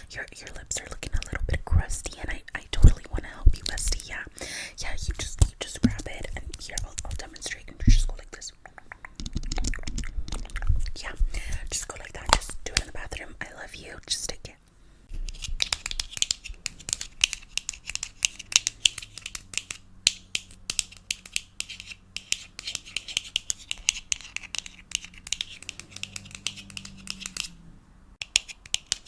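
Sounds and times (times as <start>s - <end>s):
crisp tapping and scratching clicks: 0.2s - 1.5s.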